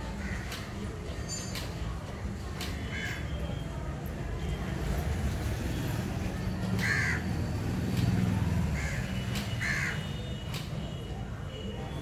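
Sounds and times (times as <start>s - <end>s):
bird cawing: 6.8s - 7.3s, 8.8s - 10.1s.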